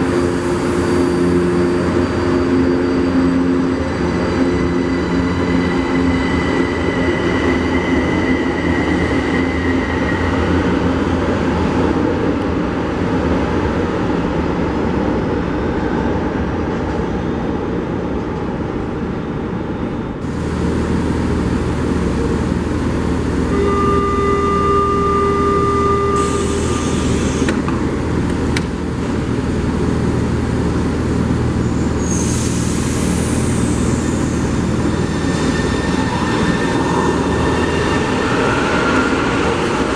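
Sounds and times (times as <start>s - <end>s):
metro train mechanical hum: 0.0s - 39.9s
electronic tone: 23.5s - 27.5s.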